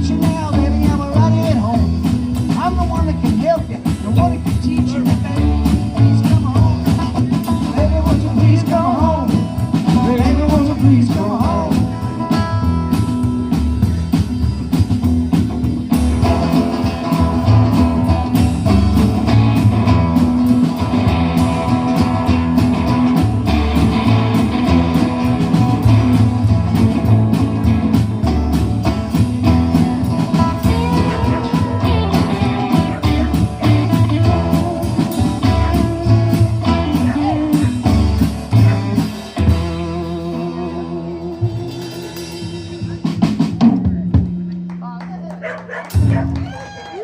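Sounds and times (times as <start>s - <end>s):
bass line: 0.0s - 47.0s
blues guitar: 0.0s - 47.0s
steady beat: 0.0s - 47.0s.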